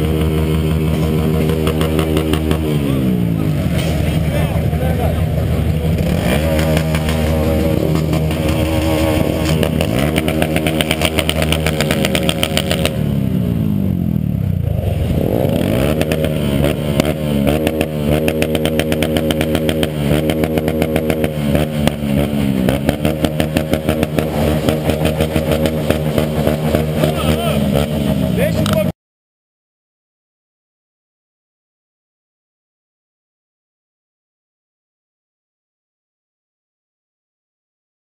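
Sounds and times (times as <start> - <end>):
motorcycle engines revving: 0.0 - 28.9.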